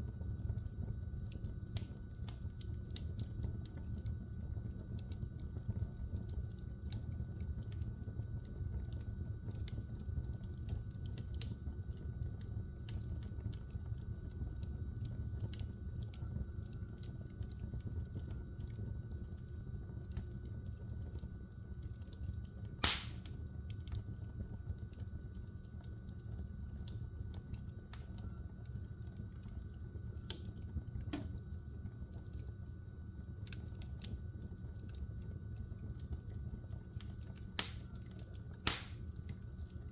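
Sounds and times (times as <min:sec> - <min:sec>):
low rumble of flames: 0:00.0 - 0:39.9
wood fire crackling: 0:00.0 - 0:39.9
loud pop of burning log: 0:22.8 - 0:23.3, 0:37.6 - 0:37.9, 0:38.6 - 0:39.1.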